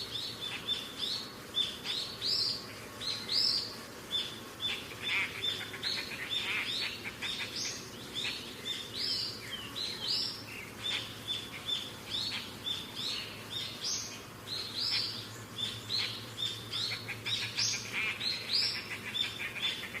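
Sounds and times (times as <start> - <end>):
parrot chirping calls: 4.2 - 20.0.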